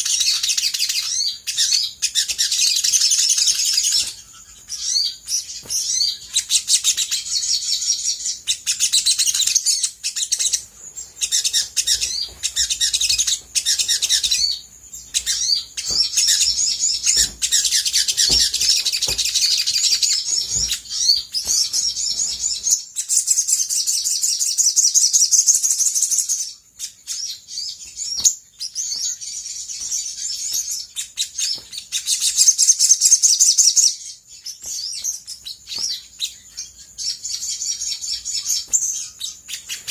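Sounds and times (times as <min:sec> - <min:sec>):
sunbird high-pitched trilling: 0:00.0 - 0:39.9.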